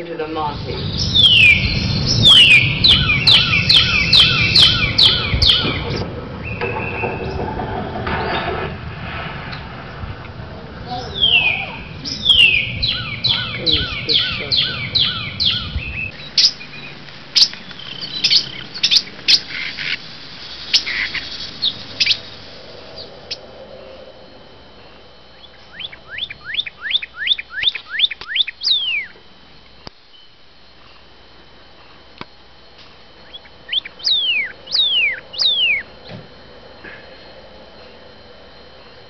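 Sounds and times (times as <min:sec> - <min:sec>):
bird chip notes: 0:00.6 - 0:07.1, 0:10.9 - 0:24.0, 0:33.2 - 0:36.1
bird whistling down-slurred notes: 0:00.8 - 0:07.4, 0:11.1 - 0:19.4, 0:33.3 - 0:35.9.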